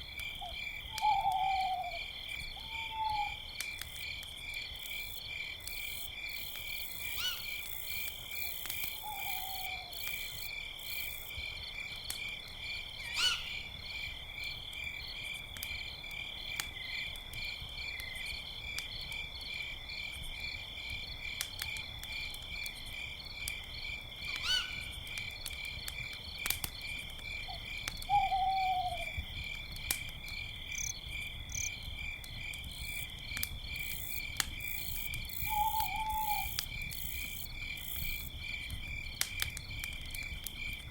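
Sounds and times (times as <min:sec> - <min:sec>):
crickets chirping: 0:00.0 - 0:40.9
owl hooting: 0:01.0 - 0:02.0, 0:07.2 - 0:07.5, 0:09.0 - 0:09.9, 0:13.2 - 0:13.5, 0:24.4 - 0:24.8, 0:28.1 - 0:29.1, 0:35.5 - 0:36.5
small pops and crackles: 0:16.5 - 0:19.3, 0:20.1 - 0:28.1, 0:29.0 - 0:30.9, 0:31.6 - 0:35.5, 0:36.4 - 0:40.9.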